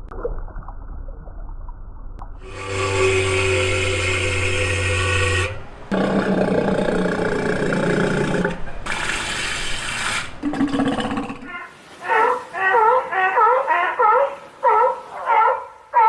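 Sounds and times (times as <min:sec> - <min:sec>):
low rough roar-like call: 0:02.4 - 0:09.6
animal calls: 0:11.4 - 0:16.0.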